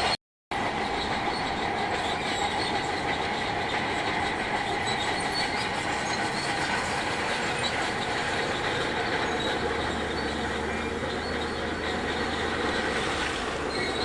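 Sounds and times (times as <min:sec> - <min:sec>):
steel tracks clattering and squealing: 0:00.0 - 0:14.0
diesel engine running: 0:06.0 - 0:14.0.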